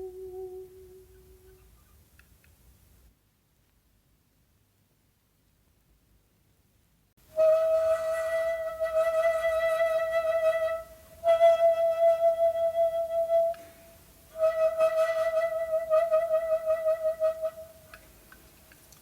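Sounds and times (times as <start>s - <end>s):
bamboo flute long held notes: 0.0s - 1.9s, 7.2s - 18.1s.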